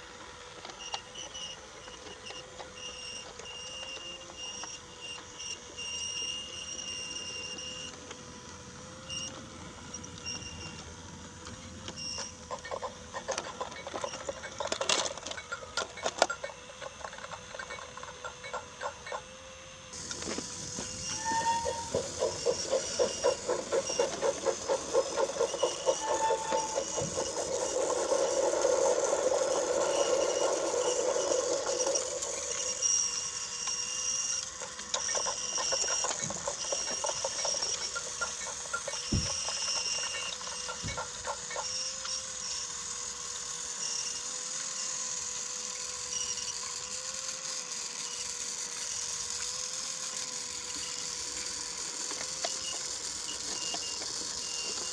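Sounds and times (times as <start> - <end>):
toy train motor humming: 0.0 - 54.9
toy train wheels rattling: 12.1 - 19.2, 20.0 - 43.8, 44.9 - 54.9.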